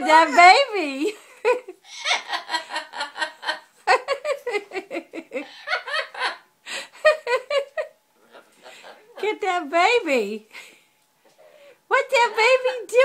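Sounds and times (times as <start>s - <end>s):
parrot mimicking laughter: 0.0s - 0.8s, 1.8s - 2.6s.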